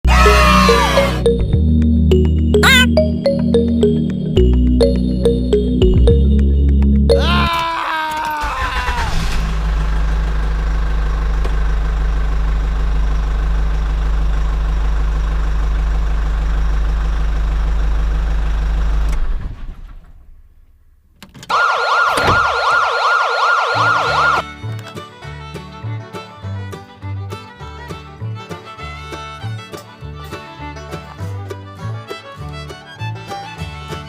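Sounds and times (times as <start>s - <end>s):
fast-warbling siren: 0.1s - 1.3s, 21.5s - 24.4s.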